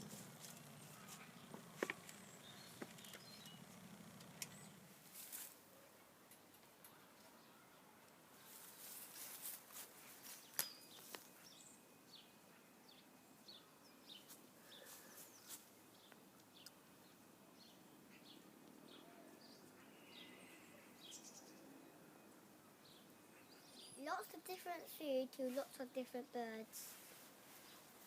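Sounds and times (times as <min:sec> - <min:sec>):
small birds chirping: 0:00.0 - 0:05.6, 0:06.4 - 0:28.0
sharp clicks: 0:00.5 - 0:04.7.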